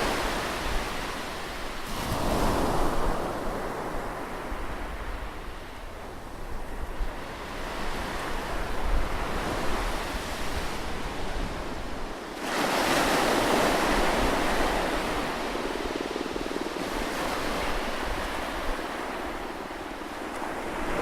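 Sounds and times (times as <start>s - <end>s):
wind rumble on microphone: 0.0s - 21.0s
ocean waves breaking: 9.2s - 21.0s.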